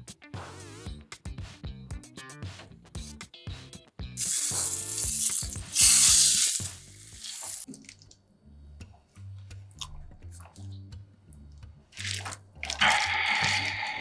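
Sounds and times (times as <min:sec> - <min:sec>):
loud even hiss: 0:04.2 - 0:07.6.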